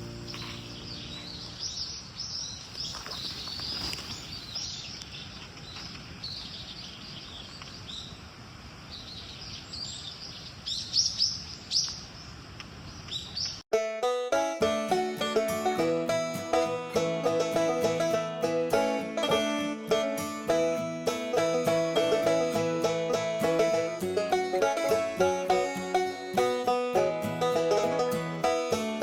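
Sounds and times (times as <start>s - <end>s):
small birds chirping: 0.0s - 8.2s, 8.9s - 13.6s
low background hiss: 0.0s - 13.2s.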